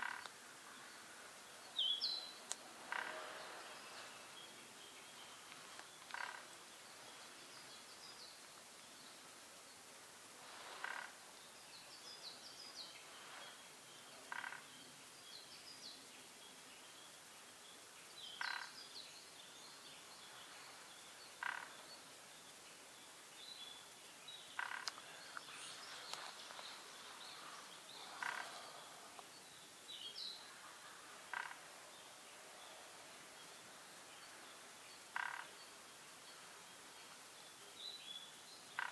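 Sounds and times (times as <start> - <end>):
small birds twittering: 0.0 - 9.8, 10.5 - 38.9
short harsh bird calls: 2.8 - 4.3, 24.6 - 29.2.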